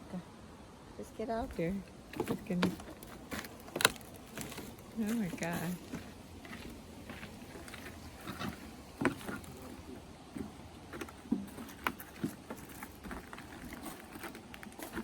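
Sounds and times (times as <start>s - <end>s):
footsteps crunching: 1.4s - 15.0s
dry sticks snapping: 2.1s - 9.6s.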